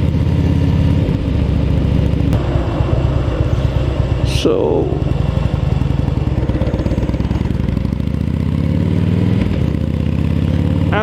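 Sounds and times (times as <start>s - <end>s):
motorcycle engine running: 0.0s - 11.0s
wind noise: 1.0s - 7.8s.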